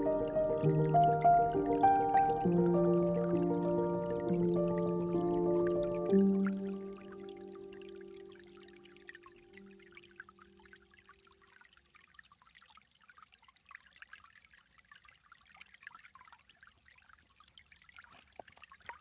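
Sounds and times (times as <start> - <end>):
background music: 0.0 - 8.4
creek trickling and splashing: 0.0 - 19.0.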